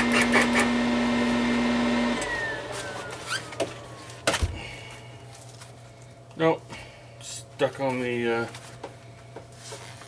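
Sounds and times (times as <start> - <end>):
welder arc buzzing and crackling: 0.0 - 4.2.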